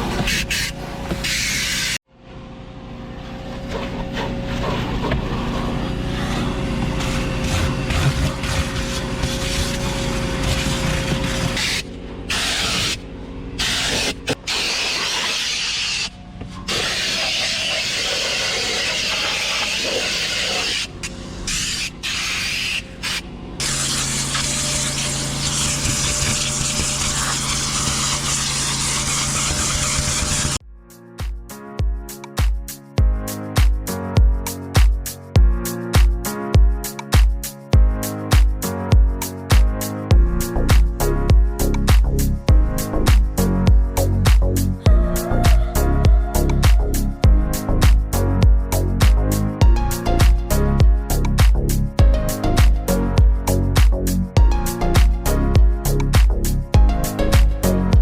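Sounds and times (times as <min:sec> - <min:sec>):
motor hum: 0:00.0 - 0:30.6, 0:42.5 - 0:48.7
spray hissing: 0:07.0 - 0:13.0, 0:13.6 - 0:16.1, 0:16.7 - 0:30.6.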